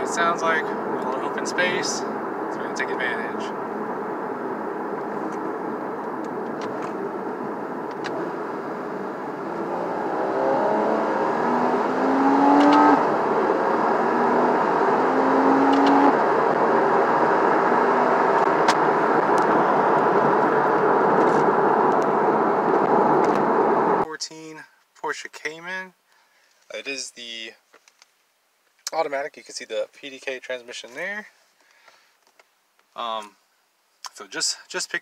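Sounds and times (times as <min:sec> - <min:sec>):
car engine accelerating hard: 0:00.0 - 0:24.0.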